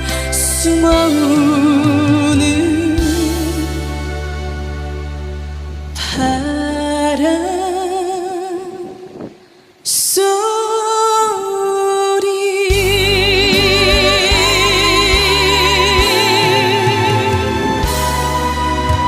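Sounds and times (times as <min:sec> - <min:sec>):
woman singing with vibrato: 0:00.0 - 0:04.1, 0:06.0 - 0:19.0
backing band with bass and drums: 0:00.0 - 0:06.0, 0:12.7 - 0:19.0.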